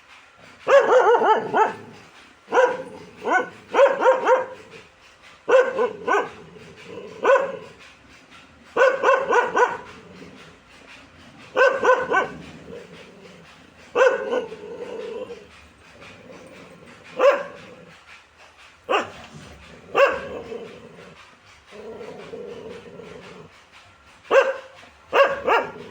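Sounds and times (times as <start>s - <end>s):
dog barking: 0.6s - 4.9s, 5.5s - 7.8s, 8.8s - 10.1s, 11.4s - 13.0s, 13.8s - 15.5s, 16.3s - 17.9s, 18.9s - 20.8s, 24.3s - 25.9s.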